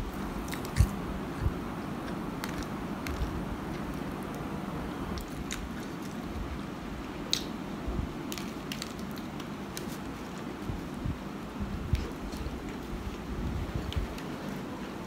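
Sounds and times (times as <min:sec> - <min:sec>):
low background hum: 0:00.0 - 0:15.0
chewing sandwich: 0:00.4 - 0:04.4, 0:05.1 - 0:06.4.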